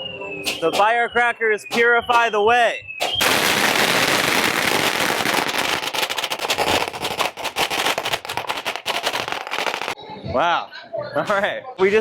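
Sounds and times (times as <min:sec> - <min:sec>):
firecrackers crackling: 0:03.0 - 0:10.0.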